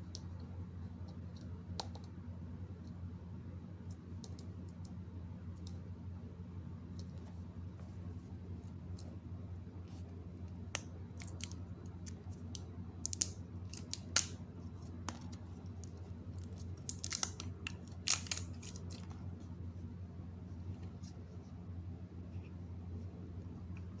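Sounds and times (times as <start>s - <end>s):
steady low hum: 0.0s - 24.0s
packaging clicks: 11.2s - 14.4s, 15.8s - 19.1s
packaging being snipped: 16.4s - 19.0s.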